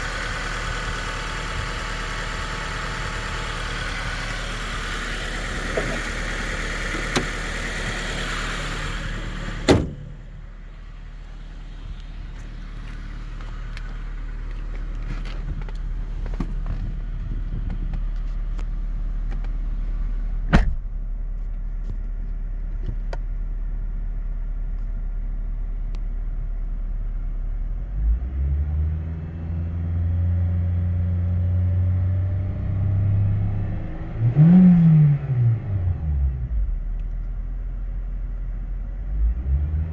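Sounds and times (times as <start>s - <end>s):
car engine idling: 0.0s - 27.7s.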